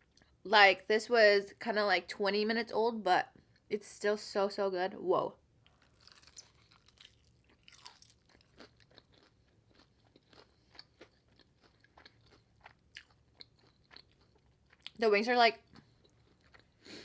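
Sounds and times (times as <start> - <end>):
person chewing crispy food: 5.7 - 15.0, 15.6 - 17.0.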